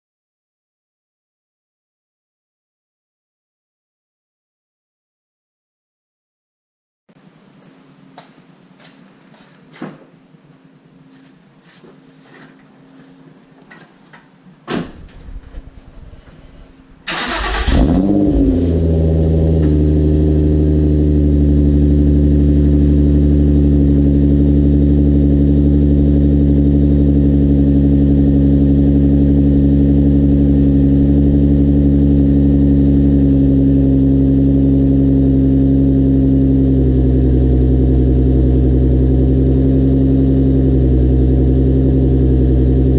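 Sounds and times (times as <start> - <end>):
thump: 14.7 - 15.2
car engine cranking and starting: 17.0 - 21.0
car engine fast idle: 17.1 - 19.9.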